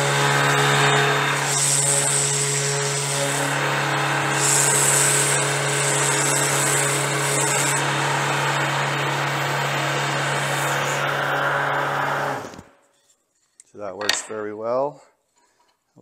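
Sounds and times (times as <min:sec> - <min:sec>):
sander motor hum: 0:00.0 - 0:12.8.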